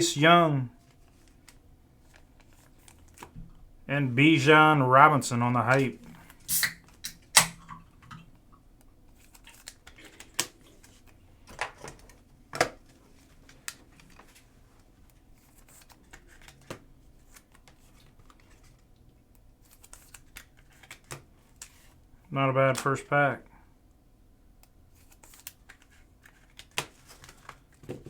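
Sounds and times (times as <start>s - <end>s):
cards clicking and tapping: 19.7s - 21.8s.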